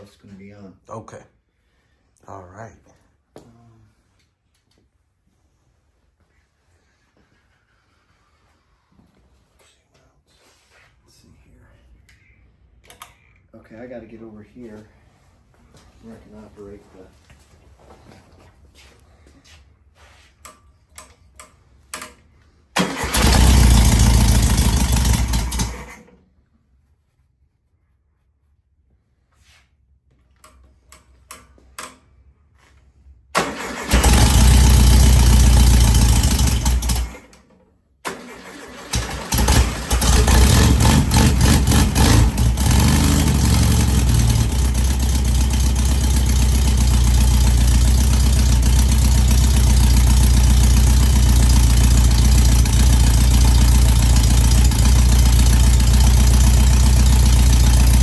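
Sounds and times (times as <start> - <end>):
car engine starting and running: 22.8 - 26.0, 33.4 - 37.3, 38.0 - 58.0.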